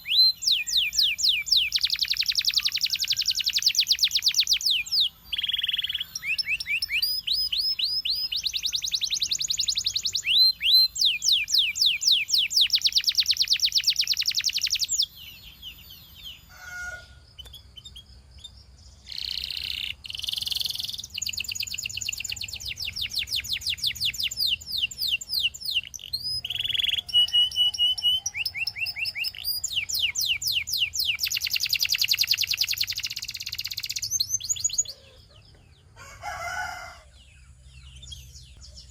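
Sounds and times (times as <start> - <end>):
canary trilling: 0.0 - 36.9.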